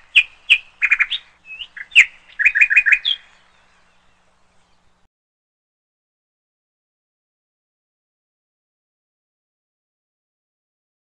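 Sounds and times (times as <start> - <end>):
bird chirping: 0.0 - 5.1.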